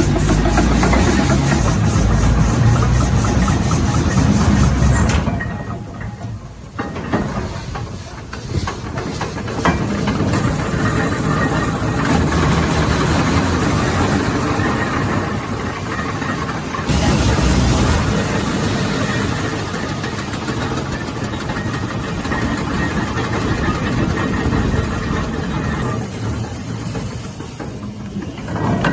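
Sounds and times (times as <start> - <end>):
steam hissing: 0.0 - 28.9
steam shovel engine running: 0.0 - 28.9.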